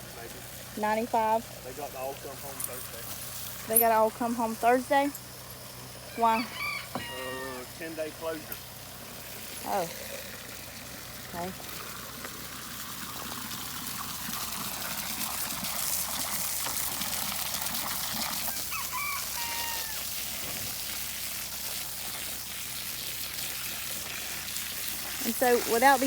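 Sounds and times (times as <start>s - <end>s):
rooster crowing: 6.1s - 7.8s, 18.5s - 20.1s.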